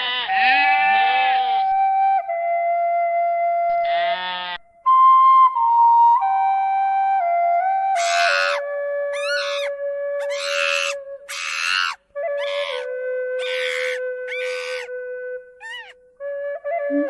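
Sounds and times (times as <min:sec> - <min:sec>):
soft flute music: 0:01.6 - 0:03.8, 0:04.7 - 0:17.0
animal calling harshly: 0:08.0 - 0:14.9, 0:15.6 - 0:16.0.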